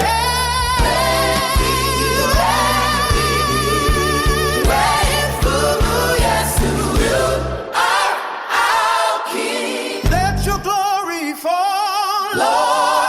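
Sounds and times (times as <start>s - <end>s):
bass line: 0.0s - 7.6s, 10.1s - 10.7s
voices singing held notes: 0.0s - 10.4s, 12.2s - 13.0s
drum beat: 0.8s - 7.4s, 10.1s - 10.5s.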